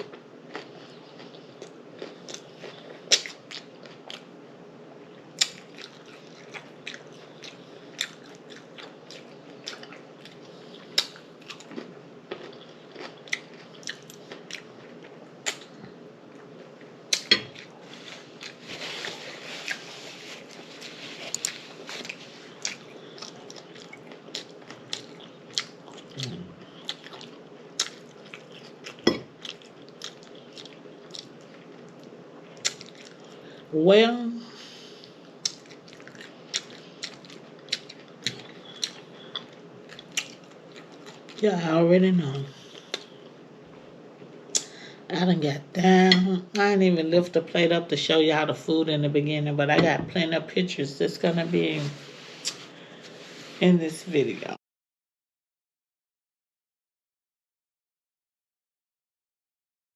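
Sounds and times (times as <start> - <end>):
chewing and crunching food: 0.0 - 4.4, 5.0 - 33.7, 34.7 - 41.4, 42.5 - 43.4.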